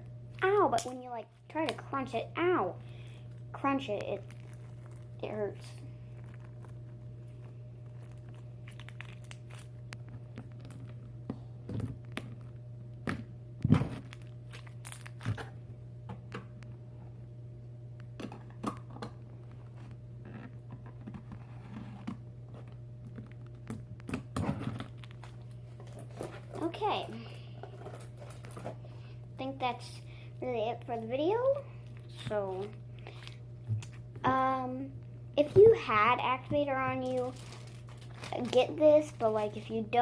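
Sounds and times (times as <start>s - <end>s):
steady low hum: 0.0s - 40.0s
hands squeezing crunchy slime: 3.6s - 11.0s, 14.0s - 15.4s, 37.0s - 38.6s.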